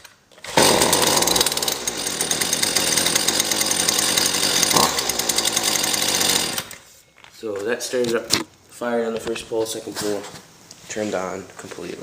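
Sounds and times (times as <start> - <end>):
string trimmer engine starting: 0.4 - 6.8.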